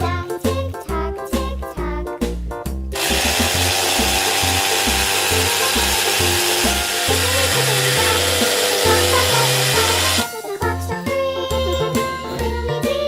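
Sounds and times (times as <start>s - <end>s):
children's background music: 0.0s - 13.0s
small electric motor whirring: 3.0s - 10.3s.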